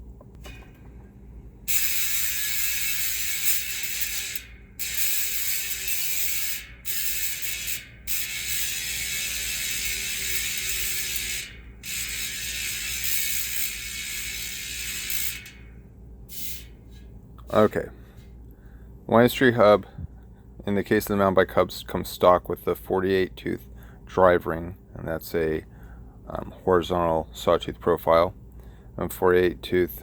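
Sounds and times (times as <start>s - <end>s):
bike hub ratchet clicking: 1.7s - 16.8s.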